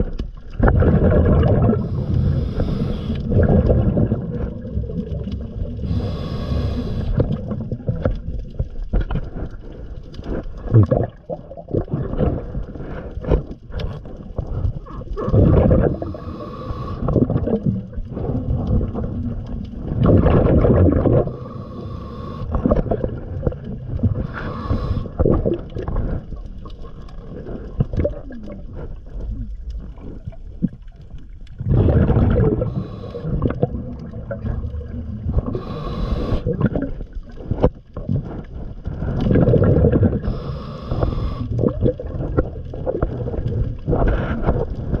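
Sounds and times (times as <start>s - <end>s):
diver's bubbles gurgling: 0.0s - 45.0s
hissing breaths: 1.8s - 3.4s, 5.3s - 7.5s, 15.8s - 18.7s, 21.2s - 23.3s, 24.0s - 26.3s, 32.5s - 34.8s, 35.4s - 36.8s, 40.0s - 41.9s.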